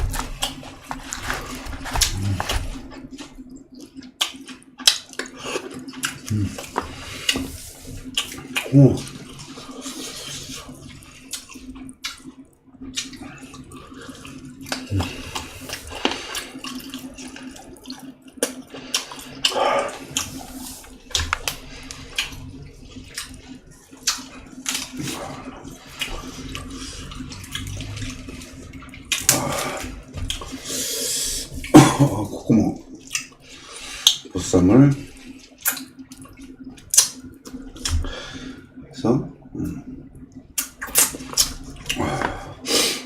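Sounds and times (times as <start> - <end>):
wet chewing and smacking: 0.0 - 30.7, 31.3 - 34.3, 34.9 - 38.1, 40.0 - 42.4
low hum: 0.0 - 42.7.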